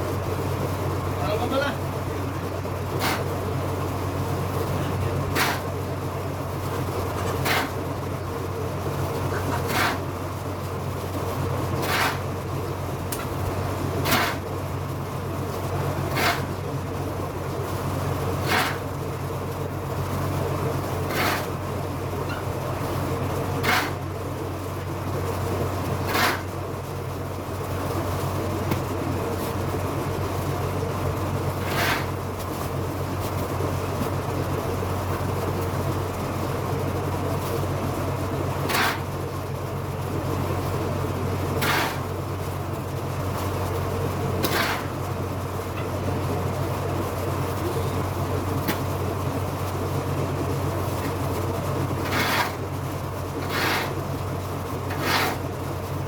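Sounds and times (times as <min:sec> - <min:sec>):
low machine hum: 0:00.0 - 0:56.0
shovel scraping through litter: 0:52.0 - 0:52.6, 0:53.4 - 0:54.0, 0:54.9 - 0:55.4.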